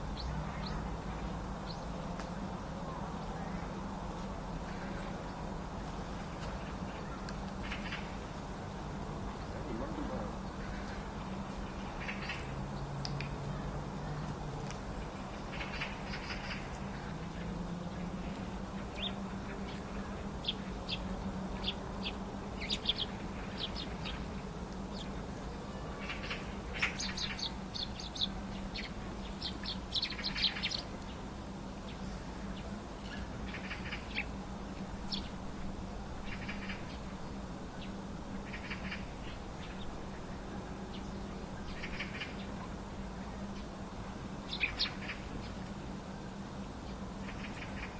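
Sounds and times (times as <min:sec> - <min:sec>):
steady low hum: 0:00.0 - 0:47.9
small birds chirping: 0:18.3 - 0:35.5, 0:44.4 - 0:45.7.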